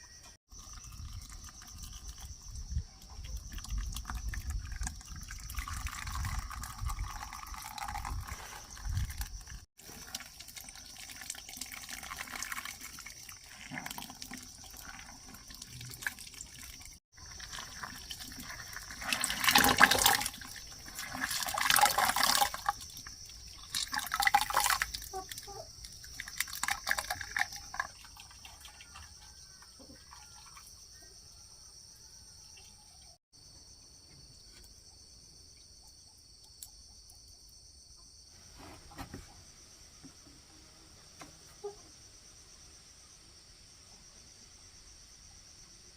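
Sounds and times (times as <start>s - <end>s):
insects droning: 0.0s - 45.9s
water splashing and pouring: 0.5s - 30.7s.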